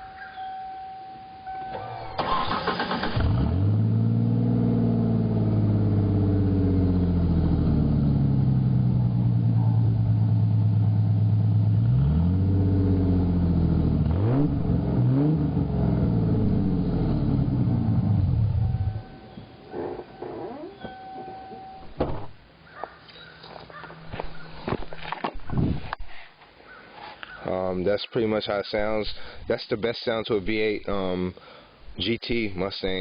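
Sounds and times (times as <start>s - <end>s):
starter motor cranking: 2.2s - 3.4s
car engine idling and revving: 2.2s - 21.9s.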